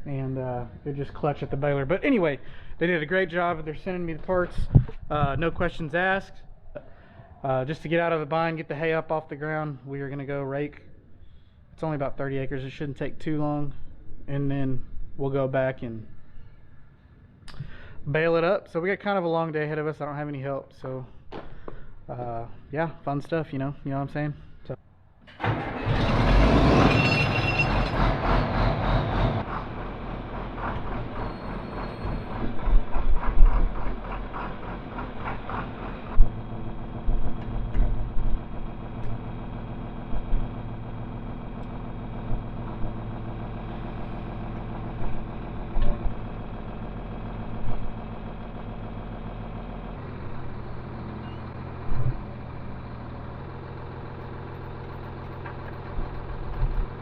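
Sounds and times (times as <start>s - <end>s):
short clunks: 4.2s - 5.5s
vehicle engine idling: 27.6s - 57.0s.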